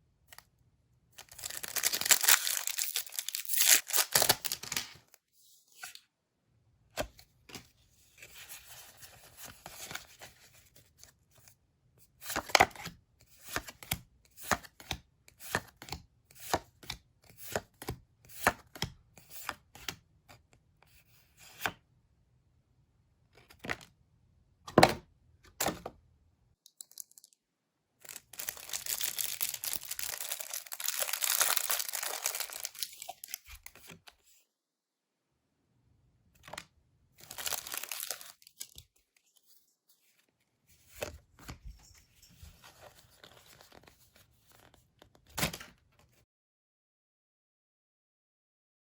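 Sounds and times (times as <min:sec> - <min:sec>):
packaging rustling and crinkling: 0:01.2 - 0:04.8, 0:28.0 - 0:33.9, 0:37.2 - 0:38.8
packaging tearing: 0:01.2 - 0:04.9, 0:28.0 - 0:33.6, 0:37.2 - 0:38.8.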